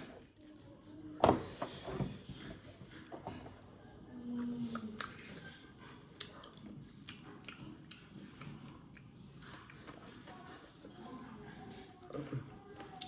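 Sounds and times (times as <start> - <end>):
close-up chewing: 4.2 - 13.0.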